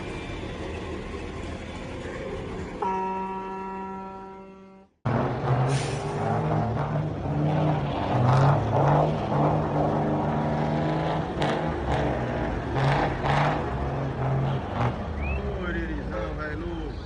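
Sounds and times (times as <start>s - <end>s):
heavy vehicle engine running: 0.0s - 4.3s.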